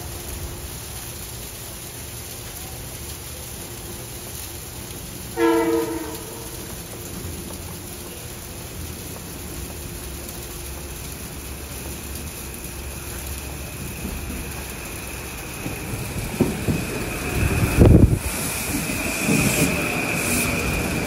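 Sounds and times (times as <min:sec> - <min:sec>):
rain hiss: 0:00.0 - 0:21.0
train rumble: 0:00.0 - 0:21.0
train wheels thumping: 0:13.7 - 0:21.0.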